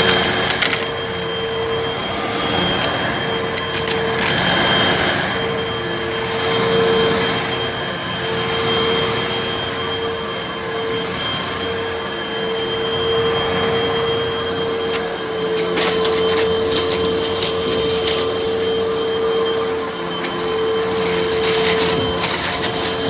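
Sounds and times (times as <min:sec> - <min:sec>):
vacuum cleaner motor hum: 0:00.0 - 0:23.0
debris crackling through nozzle: 0:14.9 - 0:18.7, 0:20.2 - 0:23.0.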